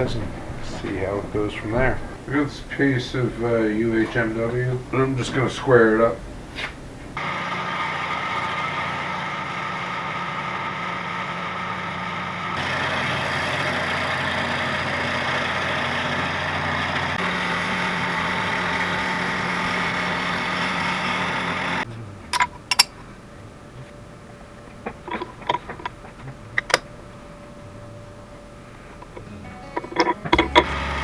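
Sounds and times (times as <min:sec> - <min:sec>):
milling machine cutting plastic: 0:29.0 - 0:31.0.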